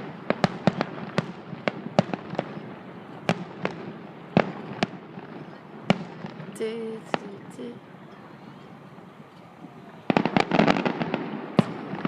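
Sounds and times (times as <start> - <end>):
fireworks bangs: 0.0 - 7.8, 8.9 - 12.0
fireworks rumble and crackle: 0.0 - 12.0.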